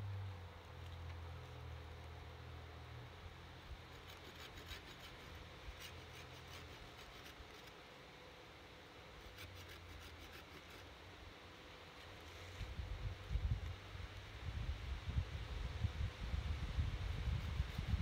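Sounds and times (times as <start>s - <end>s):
knife scraping bark off wood: 3.8s - 7.8s, 9.2s - 10.9s.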